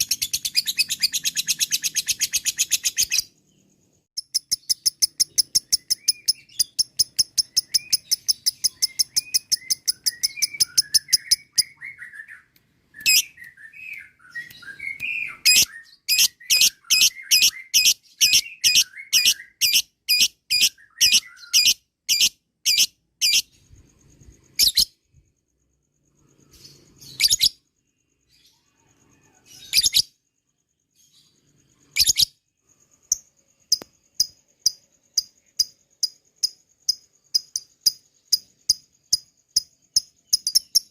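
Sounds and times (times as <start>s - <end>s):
lovebird high repeated calls: 0.0s - 3.4s, 4.1s - 25.2s, 26.4s - 27.7s, 28.3s - 30.2s, 31.0s - 40.9s
soft bird chirps: 0.0s - 40.9s.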